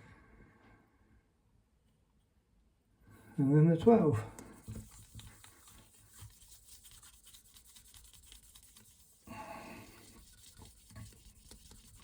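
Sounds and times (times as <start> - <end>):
polishing pad rubbing pipe: 4.6 - 12.0.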